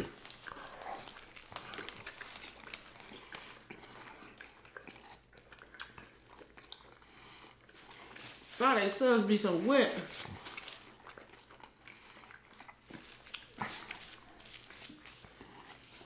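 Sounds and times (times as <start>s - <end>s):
people chewing sandwiches: 0.0s - 8.6s, 10.0s - 16.0s.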